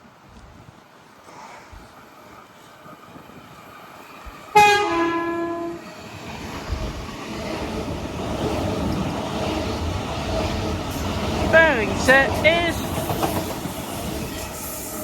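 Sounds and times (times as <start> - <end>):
train rumble: 0.0 - 15.0
train horn blast: 4.5 - 5.8.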